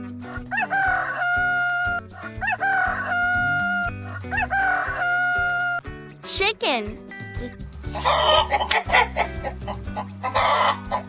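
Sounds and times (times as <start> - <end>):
backing music track: 0.0 - 11.0
rooster crowing: 8.0 - 9.2.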